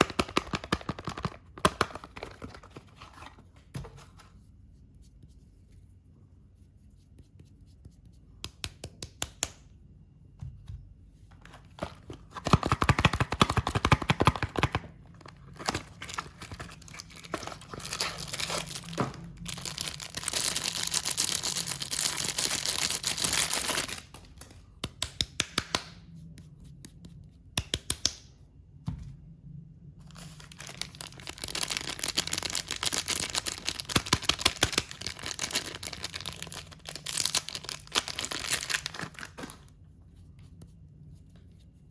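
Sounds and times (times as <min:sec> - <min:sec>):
packaging tearing and crinkling: 0:12.3 - 0:24.4, 0:30.2 - 0:39.7.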